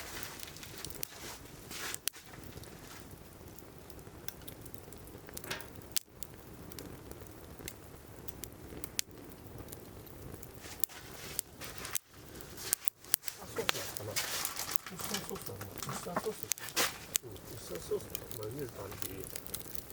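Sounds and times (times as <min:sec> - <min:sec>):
firewood crackling and popping: 0:00.0 - 0:19.9.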